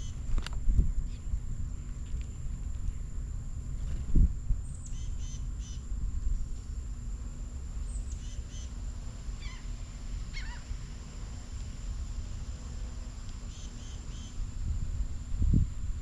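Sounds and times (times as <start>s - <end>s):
steady low rumble: 0.0s - 16.0s
small birds calling: 4.6s - 5.9s, 7.8s - 8.8s, 9.4s - 10.8s, 13.4s - 14.4s.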